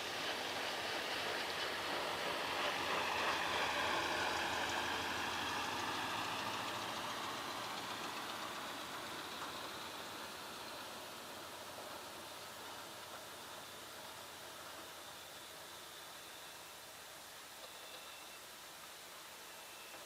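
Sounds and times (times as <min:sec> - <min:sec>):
propeller plane passing: 0:00.0 - 0:11.6.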